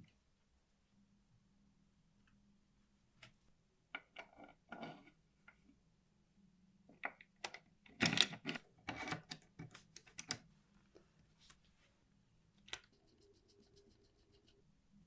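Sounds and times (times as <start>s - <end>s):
small metal parts clicking: 7.4s - 9.4s.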